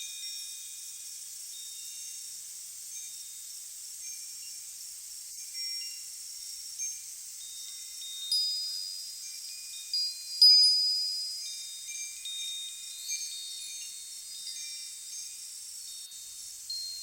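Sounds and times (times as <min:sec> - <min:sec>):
wind hiss: 0:00.0 - 0:17.0
wind chimes ringing: 0:05.4 - 0:17.0.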